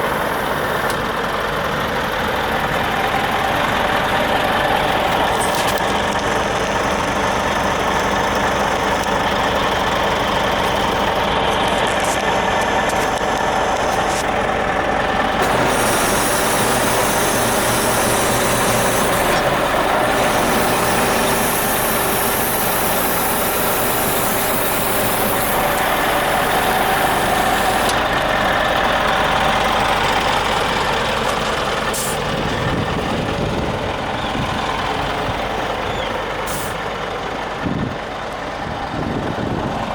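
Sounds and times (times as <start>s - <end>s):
truck diesel engine running: 0.0s - 39.9s
high hiss: 15.4s - 28.0s.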